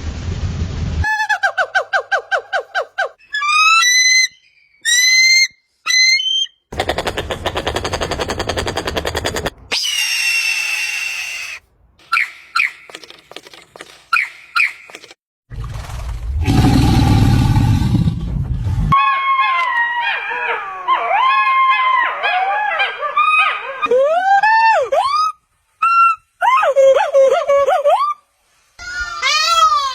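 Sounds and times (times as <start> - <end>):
long falling screech: 9.7 - 11.6.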